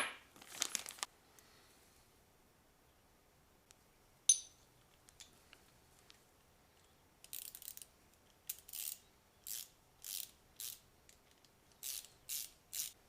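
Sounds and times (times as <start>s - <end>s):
ratchet wrench clicking: 7.2s - 7.9s, 8.5s - 10.8s, 11.8s - 13.0s.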